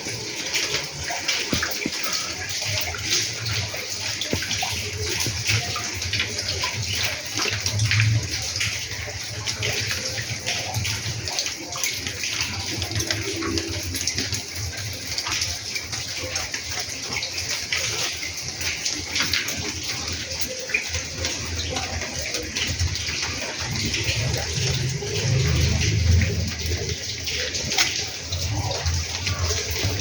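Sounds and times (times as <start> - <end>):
water splashing and rushing: 0.0 - 30.0.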